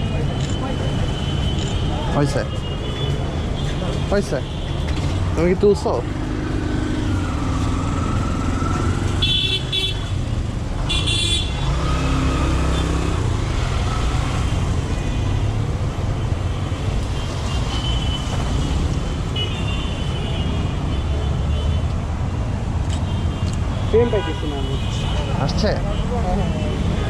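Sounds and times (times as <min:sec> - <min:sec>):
traffic engine rumble: 0:00.0 - 0:27.0
car horns honking: 0:09.1 - 0:10.2, 0:10.8 - 0:13.2.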